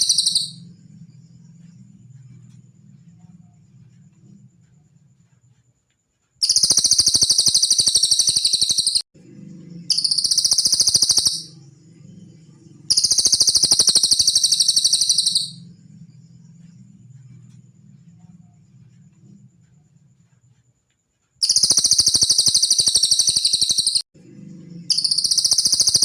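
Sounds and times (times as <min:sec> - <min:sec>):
songbird high-pitched trills: 0:00.0 - 0:00.7, 0:06.4 - 0:09.0, 0:09.8 - 0:11.6, 0:12.4 - 0:15.7, 0:21.4 - 0:24.0, 0:24.8 - 0:26.0
faint low hum: 0:00.0 - 0:07.0, 0:09.2 - 0:21.4, 0:24.2 - 0:26.0.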